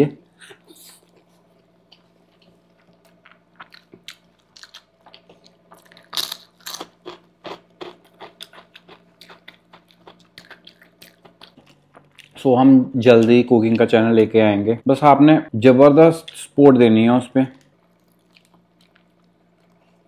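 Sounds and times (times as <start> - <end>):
wet chewing: 0.6 - 12.4, 17.6 - 20.0
chip crunching: 1.9 - 12.4, 17.5 - 20.0.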